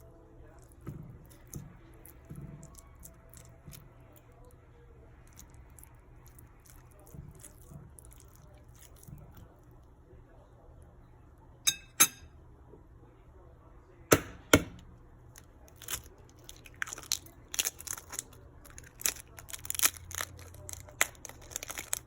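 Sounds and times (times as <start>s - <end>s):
fork clinking against bowl: 11.7s - 12.3s.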